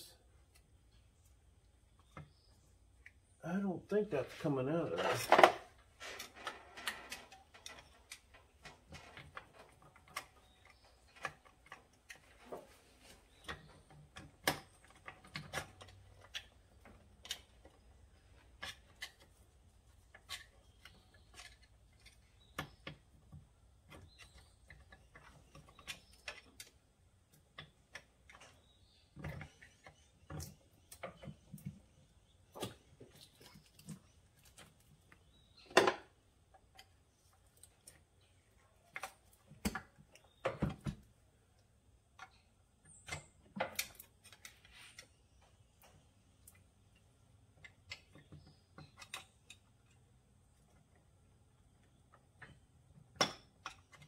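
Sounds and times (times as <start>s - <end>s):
hand tools clicking and knocking: 4.8s - 31.8s.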